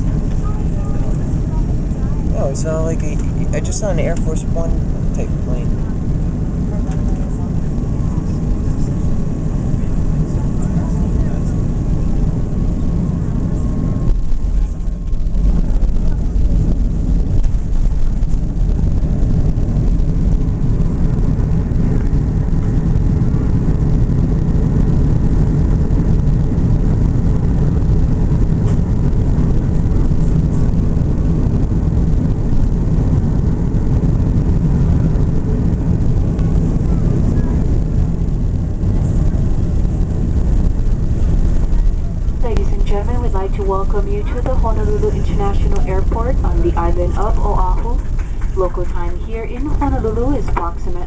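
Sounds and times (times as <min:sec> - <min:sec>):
airplane cabin engine rumble: 0:00.0 - 0:51.0.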